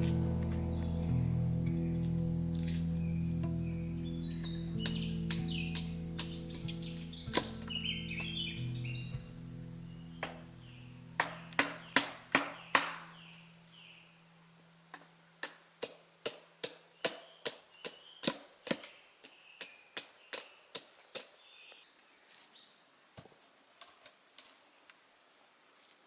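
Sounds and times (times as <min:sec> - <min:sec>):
birds chirping: 0:00.0 - 0:15.6, 0:16.3 - 0:22.9
hand tool striking wood: 0:04.8 - 0:08.4, 0:10.2 - 0:10.5, 0:11.2 - 0:13.2, 0:14.9 - 0:21.3.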